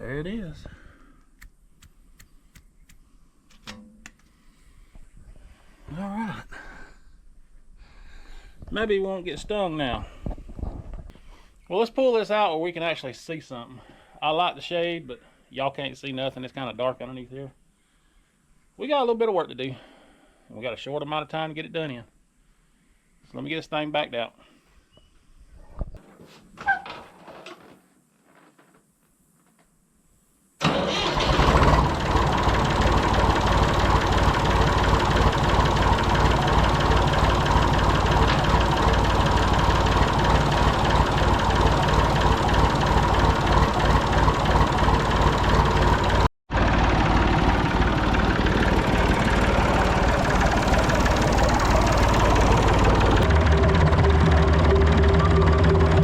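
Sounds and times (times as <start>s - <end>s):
diesel tractor engine running: 30.6s - 56.0s.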